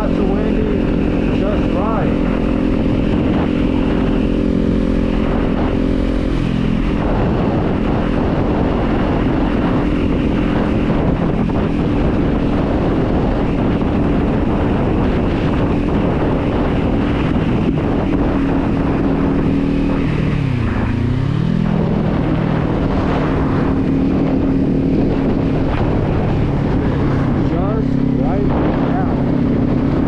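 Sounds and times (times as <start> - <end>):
motorcycle engine running: 0.0 - 30.0
wind rushing over microphone: 0.0 - 30.0.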